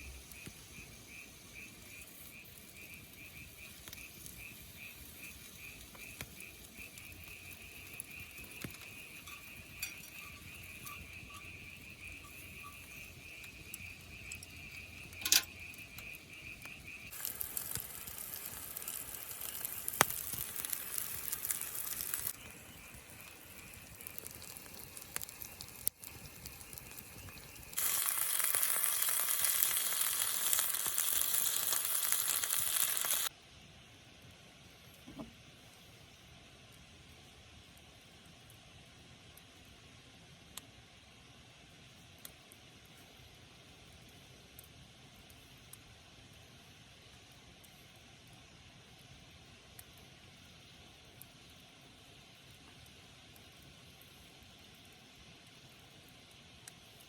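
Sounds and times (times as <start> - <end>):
food sizzling in a pan: 0.0 - 33.3
insect chirping: 0.0 - 33.3.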